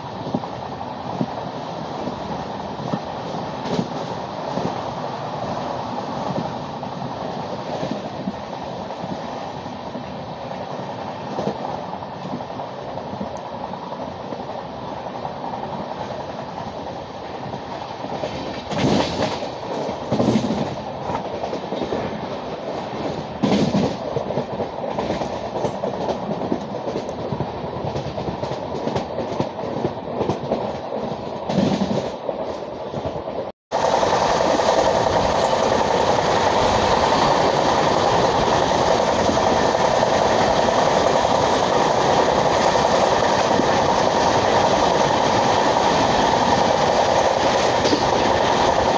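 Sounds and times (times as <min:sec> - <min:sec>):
train rumbling on track: 0:00.0 - 0:48.9
wheels clacking over rail joints: 0:18.0 - 0:48.9.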